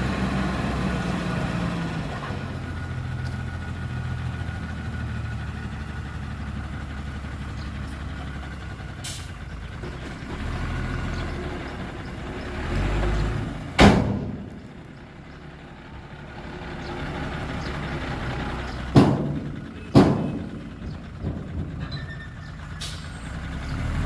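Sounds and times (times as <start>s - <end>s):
heavy diesel engine running: 0.0s - 24.0s
loud bang: 13.8s - 14.5s.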